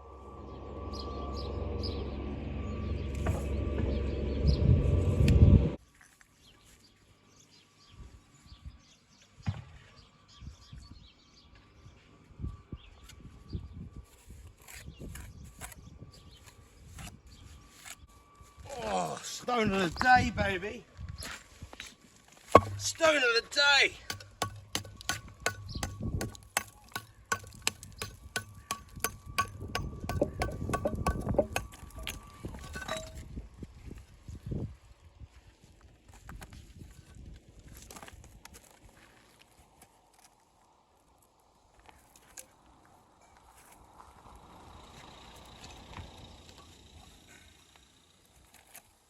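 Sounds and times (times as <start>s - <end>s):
loud mechanical running noise: 0.0s - 5.8s
birds chirping: 22.6s - 33.1s.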